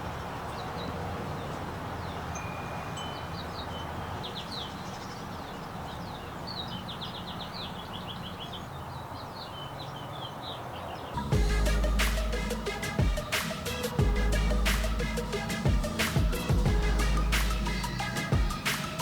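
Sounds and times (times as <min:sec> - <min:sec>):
small birds chirping: 0:00.0 - 0:19.0
music with heavy bass: 0:11.2 - 0:19.0
steady background hum: 0:11.2 - 0:19.0.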